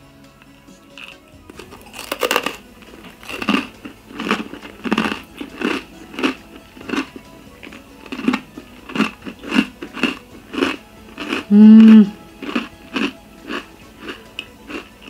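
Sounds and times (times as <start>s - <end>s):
person chewing dry crunchy rusk: 0.4s - 15.0s.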